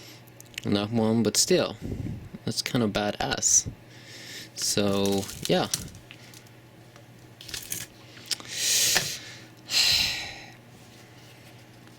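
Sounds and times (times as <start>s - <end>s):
rustling scraping handling noise: 4.6s - 6.5s.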